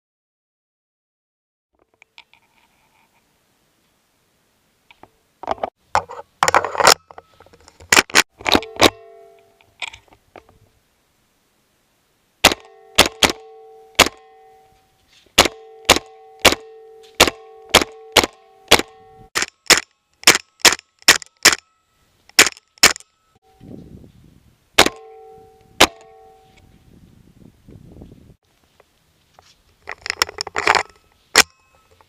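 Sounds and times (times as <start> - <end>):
metallic ringing: 8.5 - 9.7, 12.5 - 19.3, 20.0 - 23.8, 24.8 - 26.8, 30.8 - 32.0
pistol shots: 12.4 - 14.2, 15.4 - 21.6, 24.8 - 25.1.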